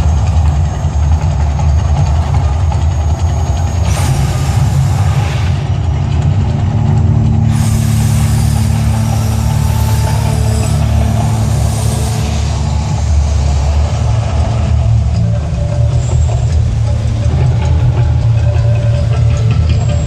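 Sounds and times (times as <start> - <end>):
deep loud rumble: 0.0 - 20.0
hissing rush: 3.8 - 14.4.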